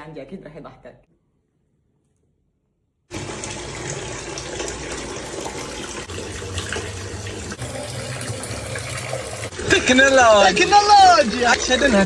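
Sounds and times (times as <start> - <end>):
running tap water: 3.1 - 12.0.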